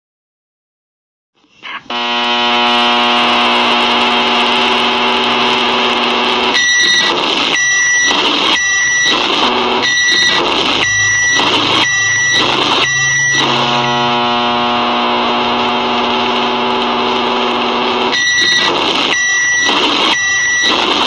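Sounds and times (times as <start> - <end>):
loud microwave beeps: 6.6 - 14.1, 18.1 - 21.0
microwave oven hum: 10.8 - 18.4.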